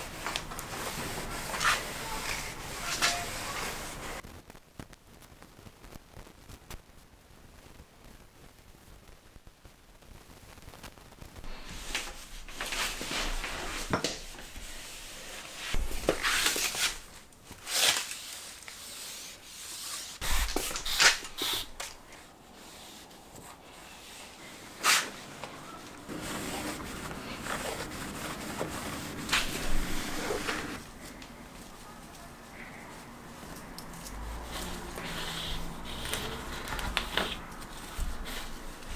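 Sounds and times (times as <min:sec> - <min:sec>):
hand scrubbing window frame: 0:00.0 - 0:04.2, 0:11.5 - 0:17.1, 0:17.8 - 0:38.9.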